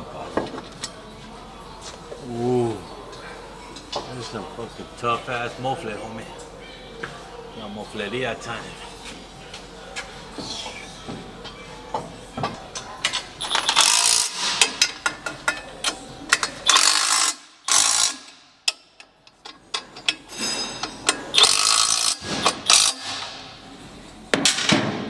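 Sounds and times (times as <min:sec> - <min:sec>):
ratchet wrench clicking: 0:13.5 - 0:20.2, 0:20.8 - 0:23.3.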